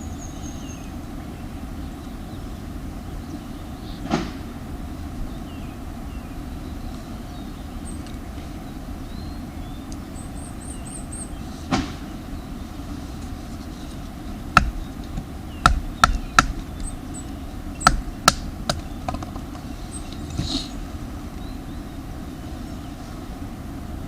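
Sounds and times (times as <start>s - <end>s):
steady low rumble: 0.9s - 24.0s
sharp cracks and knocks: 4.1s - 4.4s, 14.6s - 16.9s, 17.8s - 19.6s.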